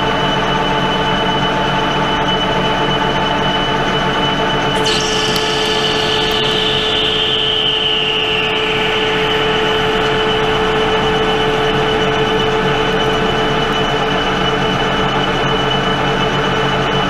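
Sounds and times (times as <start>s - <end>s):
cutting whine: 4.7s - 13.1s
lathe running: 4.8s - 11.2s.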